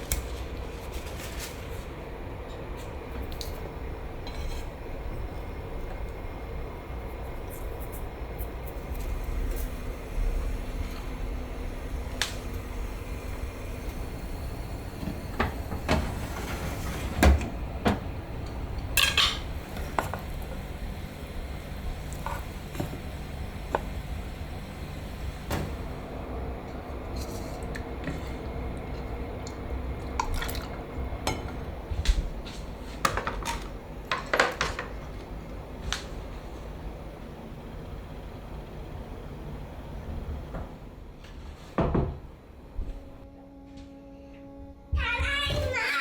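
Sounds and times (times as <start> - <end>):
dishes and cutlery clinking: 19.0 - 20.2.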